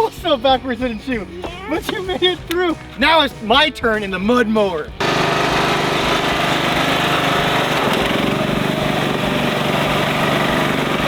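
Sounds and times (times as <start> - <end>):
riding lawnmower engine running: 4.8 - 11.0.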